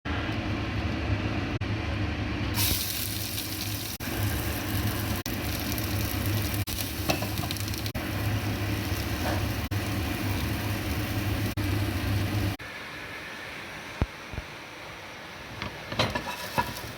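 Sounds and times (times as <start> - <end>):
constant low hum: 0.1 - 12.8
food sizzling in hot oil: 2.6 - 12.6, 16.1 - 16.9.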